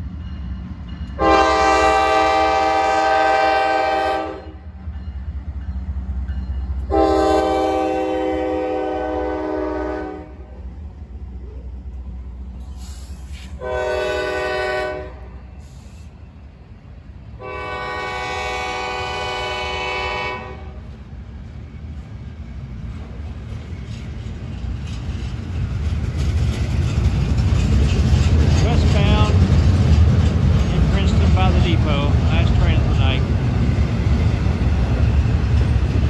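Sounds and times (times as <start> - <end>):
low train rumble: 0.0 - 36.0
locomotive air horn blasts: 1.2 - 4.6, 6.9 - 10.5, 13.6 - 15.4, 17.4 - 20.8.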